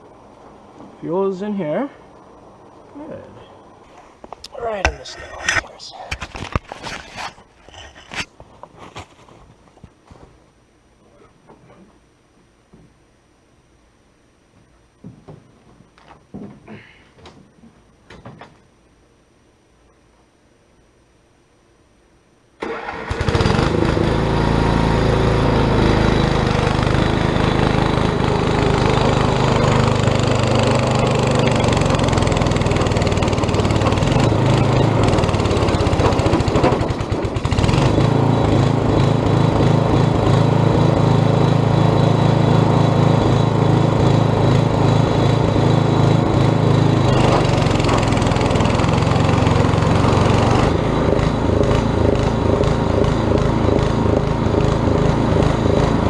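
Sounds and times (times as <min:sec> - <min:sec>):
small engine running: 0:22.7 - 0:56.0.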